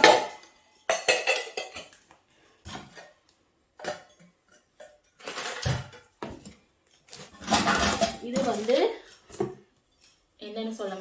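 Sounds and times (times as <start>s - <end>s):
small cookware clinking: 0.0s - 2.1s.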